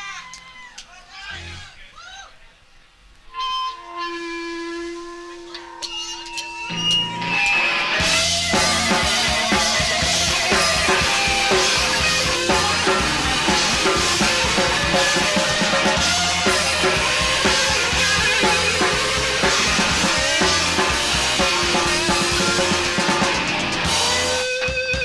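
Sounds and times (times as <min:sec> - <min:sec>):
live rock band playing: 0:06.7 - 0:25.0
drum kit beat: 0:07.0 - 0:25.0.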